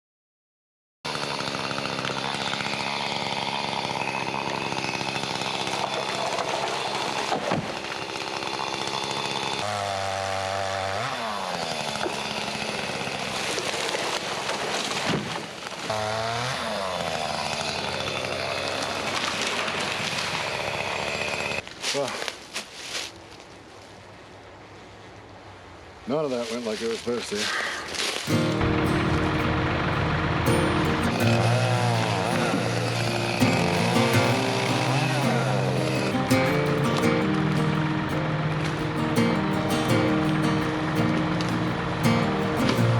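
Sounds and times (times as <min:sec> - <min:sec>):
engine running under load: 0:28.3 - 0:42.9.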